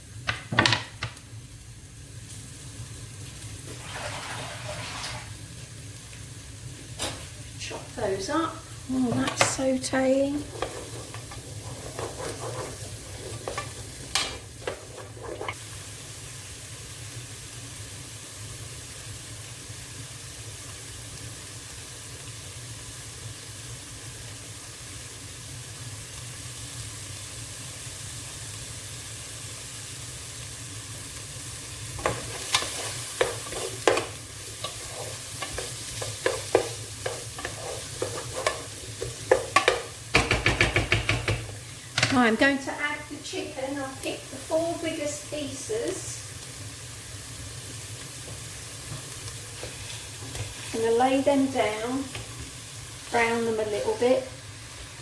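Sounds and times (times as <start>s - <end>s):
vegetables sizzling in a pan: 0.0s - 55.0s
utensil knocking against pan: 35.4s - 42.2s.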